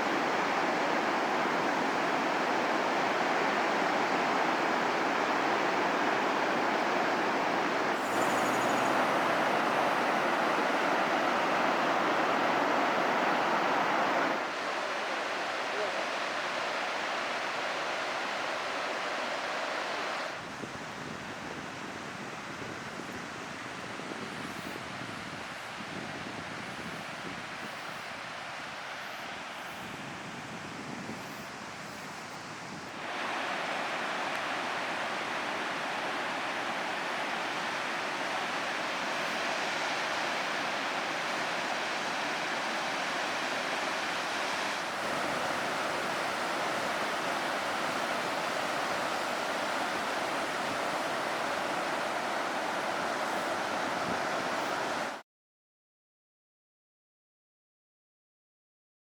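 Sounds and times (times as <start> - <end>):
ocean surf rushing on shore: 0.0 - 20.5, 32.9 - 55.2.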